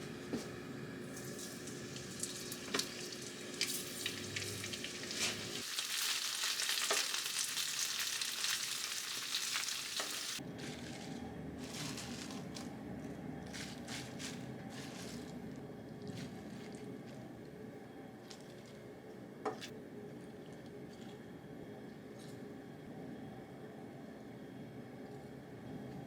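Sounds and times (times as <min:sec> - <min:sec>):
food sizzling in a frying pan: 0:01.1 - 0:10.4.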